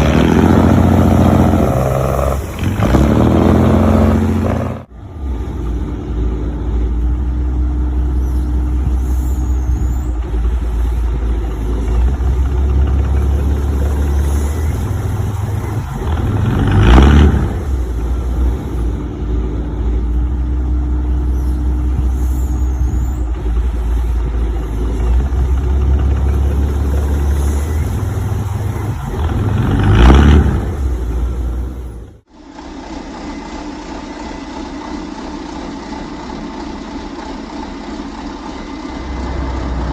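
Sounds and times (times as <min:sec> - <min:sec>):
heavy vehicle engine rumbling: 0:00.0 - 0:39.9.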